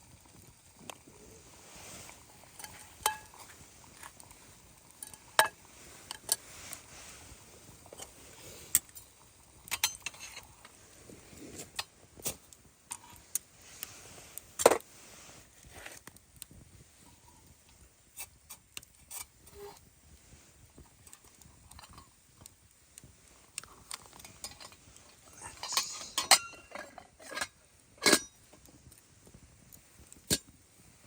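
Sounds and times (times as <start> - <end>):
metal cookware clinking: 25.4 - 28.4.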